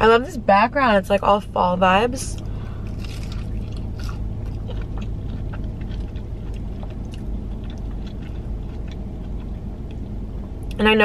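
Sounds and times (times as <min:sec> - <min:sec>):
steady low hum: 0:00.0 - 0:11.0
close-up chewing: 0:02.4 - 0:10.8.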